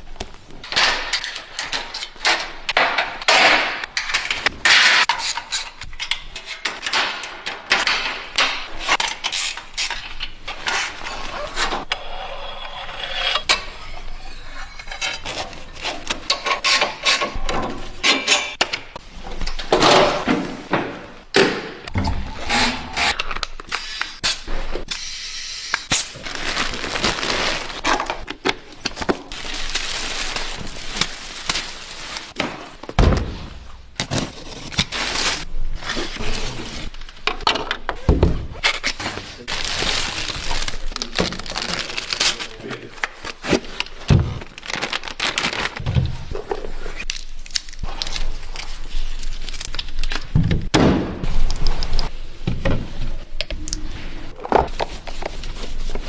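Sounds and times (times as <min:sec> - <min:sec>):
packaging crinkling: 0:25.9 - 0:32.4, 0:39.5 - 0:45.8, 0:47.0 - 0:50.3.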